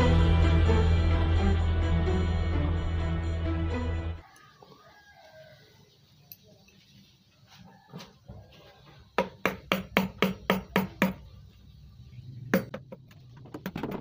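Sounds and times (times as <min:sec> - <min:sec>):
mallet tapping chisel into wood: 0:09.2 - 0:11.2.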